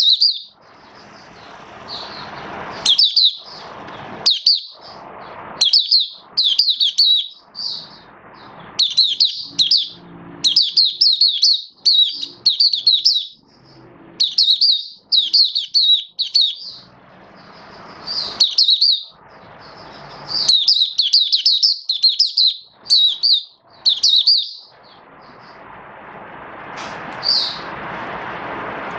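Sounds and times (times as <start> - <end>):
bird high-pitched twittering: 0.0 - 25.6, 27.2 - 27.7.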